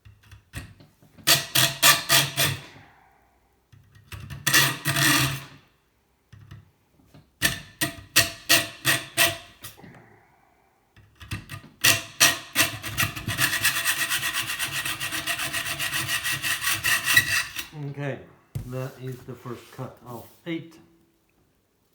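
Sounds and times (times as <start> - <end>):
hand saw cutting metal tube: 1.3 - 2.7, 4.4 - 5.5, 7.4 - 9.8, 11.8 - 17.8.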